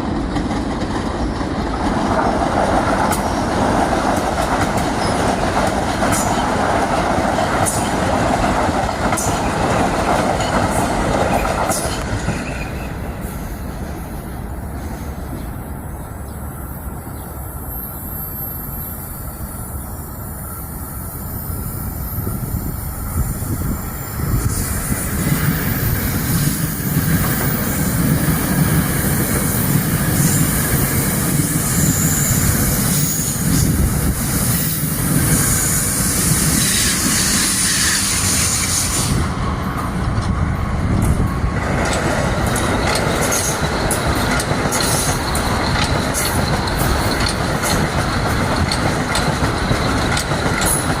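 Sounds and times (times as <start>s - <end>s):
train passing on rails: 0.0s - 51.0s
train wheel squeal: 4.7s - 8.2s, 9.0s - 13.8s, 14.7s - 51.0s
wheels clicking over rail joints: 41.0s - 51.0s.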